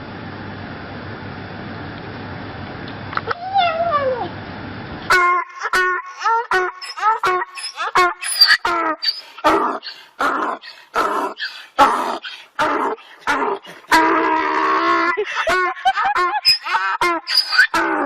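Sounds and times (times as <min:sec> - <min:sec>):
dog whining and yelping: 0:03.3 - 0:04.3, 0:05.4 - 0:14.0, 0:15.1 - 0:18.0.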